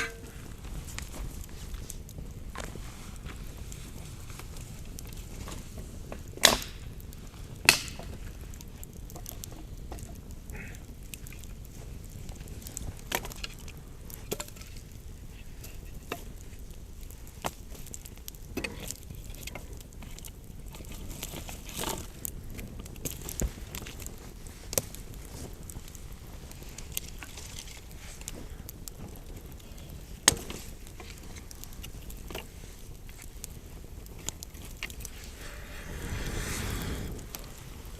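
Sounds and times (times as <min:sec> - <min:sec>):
wooden cracks and knocks: 0:07.6 - 0:08.2, 0:30.2 - 0:32.5
steady low rumble: 0:34.7 - 0:37.9.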